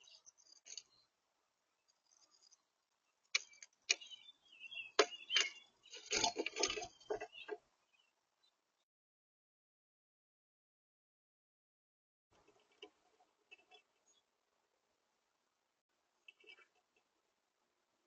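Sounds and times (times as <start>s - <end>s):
high bird chirps: 3.4s - 8.1s
taps and knocks at bird feeder: 5.0s - 5.6s.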